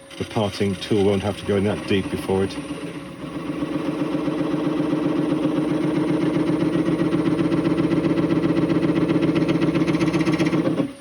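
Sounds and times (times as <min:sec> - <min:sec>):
wood lathe motor humming: 0:00.0 - 0:11.0.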